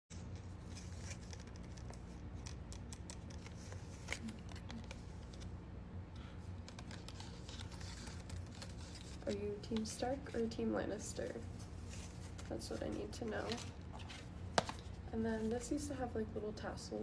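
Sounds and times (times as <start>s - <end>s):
bookmarks clicking and tapping: 14.5s - 14.8s.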